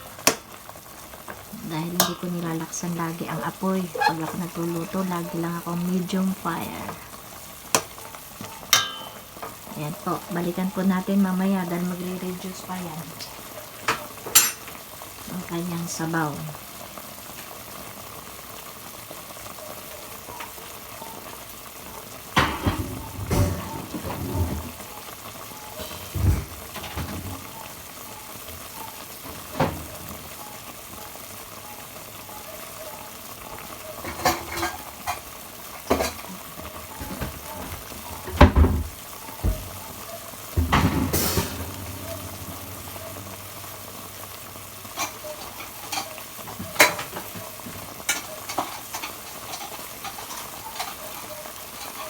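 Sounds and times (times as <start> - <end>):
food simmering and sizzling in pot: 0.0 - 52.0.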